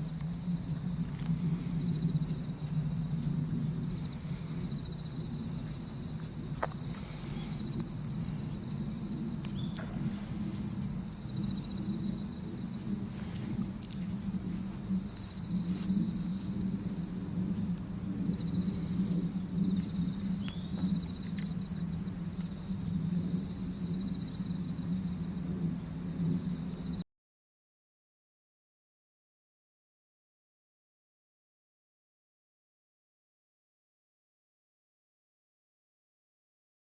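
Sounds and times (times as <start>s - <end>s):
low rumble: 0.0s - 26.7s
high-pitched insect chorus: 0.0s - 27.0s
faint ticks: 4.1s - 11.8s.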